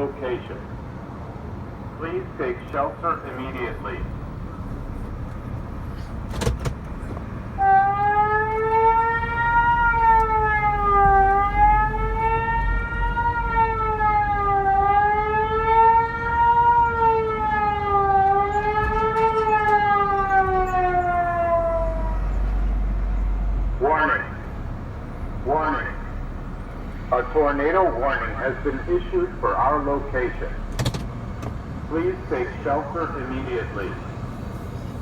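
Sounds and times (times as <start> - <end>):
recorded voice warning: 0.0 - 0.8, 1.9 - 4.2, 23.6 - 24.6, 25.3 - 26.3, 27.0 - 30.7, 31.8 - 34.2
electronic alert siren wailing: 7.6 - 22.3.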